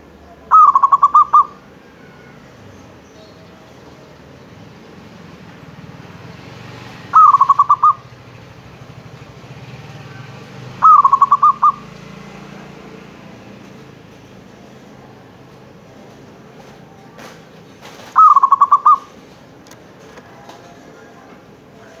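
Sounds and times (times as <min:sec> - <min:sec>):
dove cooing: 0:00.4 - 0:02.5, 0:07.0 - 0:09.2, 0:10.1 - 0:12.0, 0:17.8 - 0:19.2.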